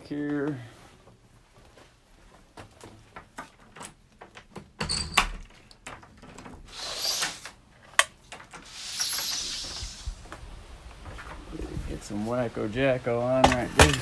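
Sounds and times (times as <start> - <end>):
objects being handled: 0.4 - 11.5, 13.4 - 14.0.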